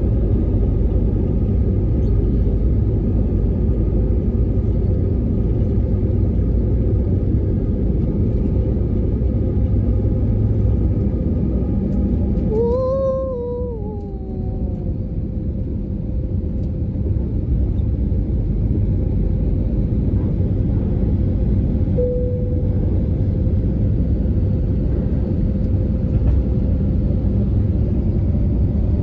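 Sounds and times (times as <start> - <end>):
airplane engines rumbling: 0.0 - 29.0.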